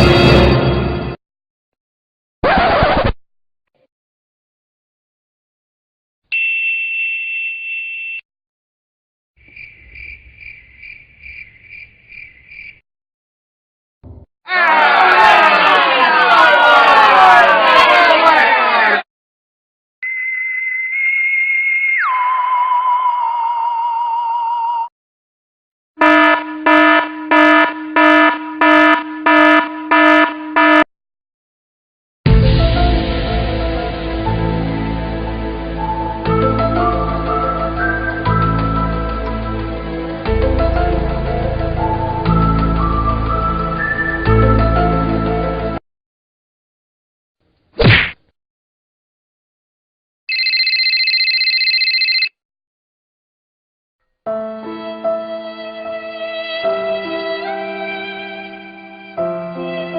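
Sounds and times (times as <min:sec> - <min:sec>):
insect chirps: 0:09.4 - 0:12.8
electronic alarm buzzer pulses: 0:26.0 - 0:30.9, 0:50.3 - 0:52.3.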